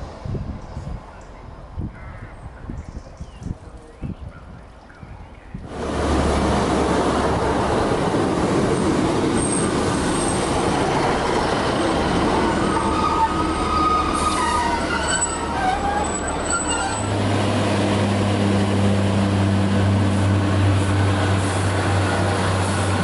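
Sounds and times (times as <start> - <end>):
train engine and wheels rumbling: 0.0 - 23.0
high squeal from wheels: 9.4 - 10.5, 11.8 - 17.2.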